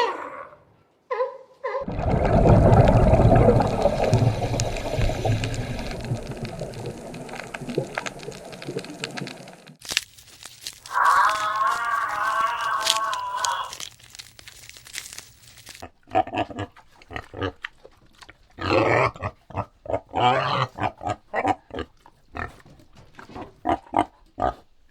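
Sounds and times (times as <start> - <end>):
animal calling and grunting: 0.0 - 1.9, 10.9 - 13.9, 15.7 - 24.9.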